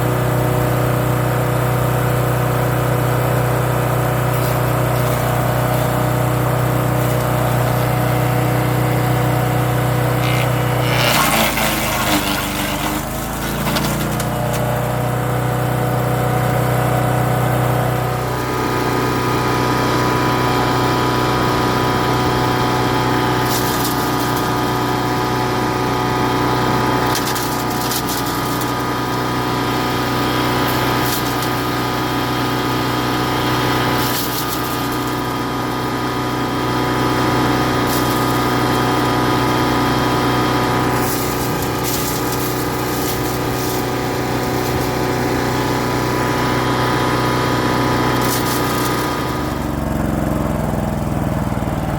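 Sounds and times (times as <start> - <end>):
wood chipper engine running: 0.0 - 51.9
branches snapping: 10.2 - 14.7.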